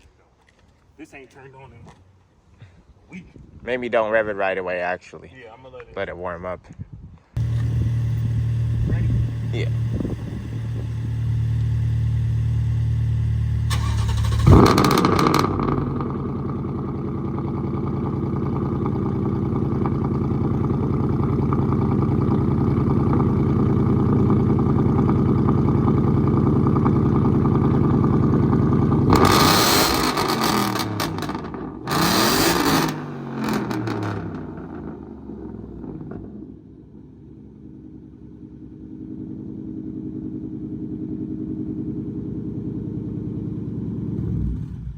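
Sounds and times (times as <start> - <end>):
low hum: 7.4 - 14.8
engine throttle blips: 7.4 - 17.1, 18.7 - 36.2
car engine starting and idling: 7.4 - 44.9.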